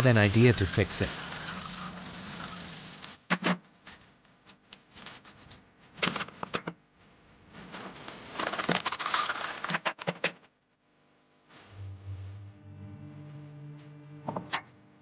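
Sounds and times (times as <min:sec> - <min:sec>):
scraping or rustling: 0:07.6 - 0:09.8.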